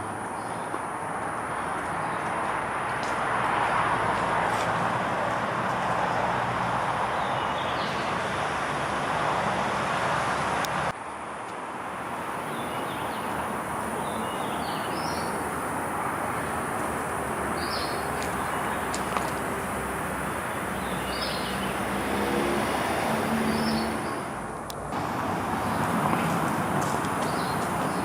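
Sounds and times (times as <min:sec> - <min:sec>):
road traffic hum: 0:00.0 - 0:28.0.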